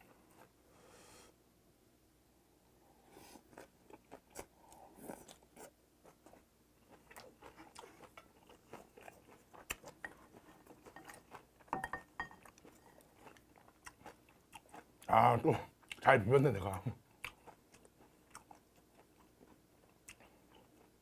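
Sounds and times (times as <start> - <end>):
chewing and crunching food: 3.2 - 21.0.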